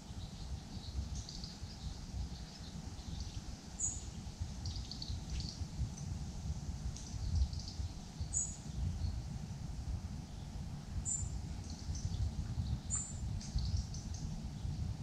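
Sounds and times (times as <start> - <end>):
small birds chirping: 0.0 - 9.4, 10.2 - 15.0
constant low rumble: 0.0 - 15.0.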